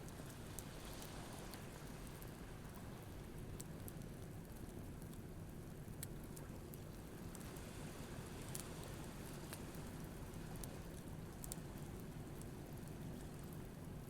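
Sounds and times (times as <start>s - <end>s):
bonfire crackling and popping: 8.5s - 13.8s.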